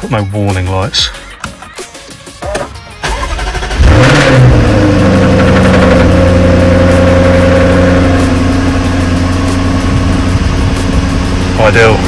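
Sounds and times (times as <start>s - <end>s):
car engine idling: 3.0s - 12.0s
car engine starting and revving: 3.0s - 12.0s.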